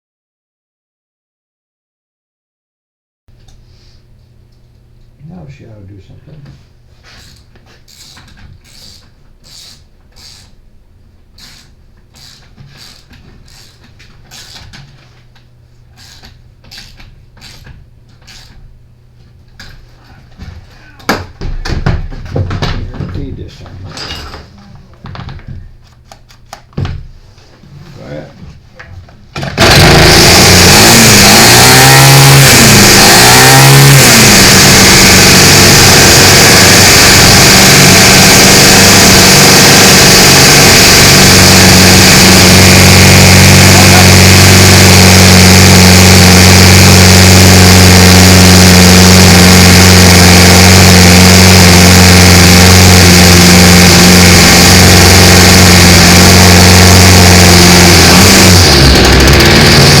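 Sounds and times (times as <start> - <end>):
string trimmer engine revving: 29.4 - 60.0.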